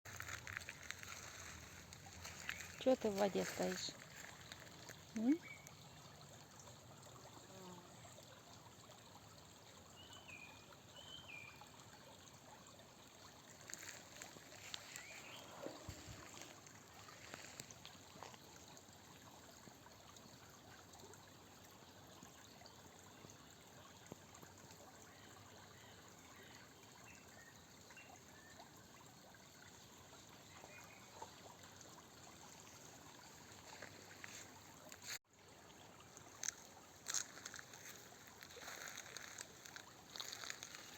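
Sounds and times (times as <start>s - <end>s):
small splashes and clicks: 0.1s - 7.2s, 13.0s - 25.4s, 30.7s - 35.2s, 36.0s - 40.9s
faint trickling water: 0.1s - 40.9s.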